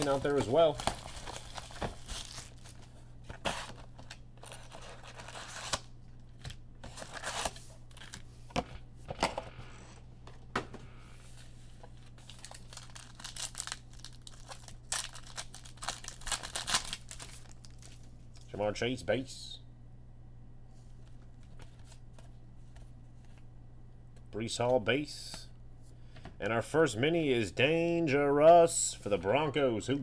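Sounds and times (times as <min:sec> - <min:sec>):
wrappers tearing and crinkling: 0:00.0 - 0:08.2, 0:12.0 - 0:18.2.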